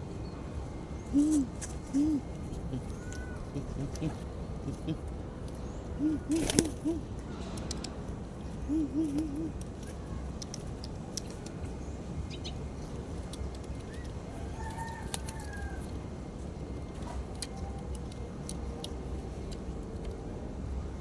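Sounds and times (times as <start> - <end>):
low background hum: 0.0 - 21.0
pigeon cooing: 1.0 - 7.2, 8.5 - 9.6.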